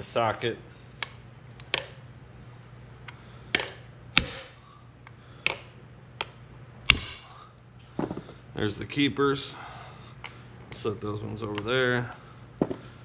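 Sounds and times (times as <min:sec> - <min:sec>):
hammer striking metal: 0:03.6 - 0:04.6, 0:06.9 - 0:07.4.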